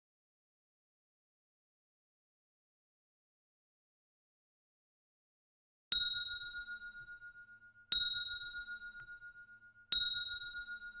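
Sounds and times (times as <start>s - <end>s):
timer alarm bell-like ding: 5.9s - 11.0s.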